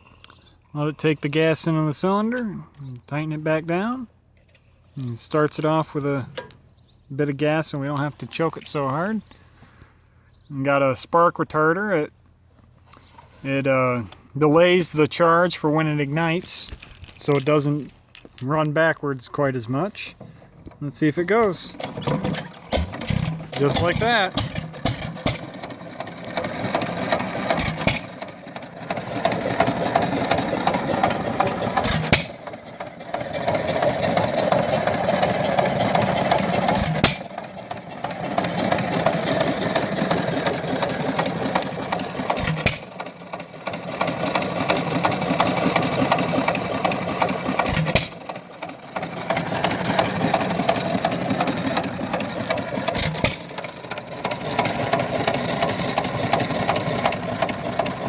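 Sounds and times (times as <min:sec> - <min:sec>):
engine clattering on flywheels: 0:00.0 - 0:09.9, 0:12.8 - 0:58.0
engine firing bang: 0:36.6 - 0:37.3, 0:42.4 - 0:42.9, 0:47.6 - 0:48.2.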